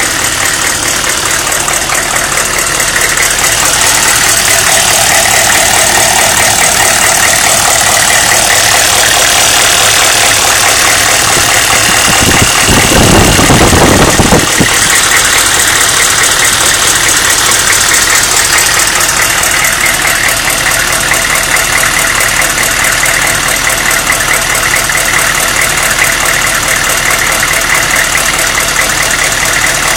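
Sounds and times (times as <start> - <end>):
diesel engine idling with clatter: 0.0 - 29.9
odd engine noise: 0.0 - 29.9
low rumble: 0.1 - 17.4.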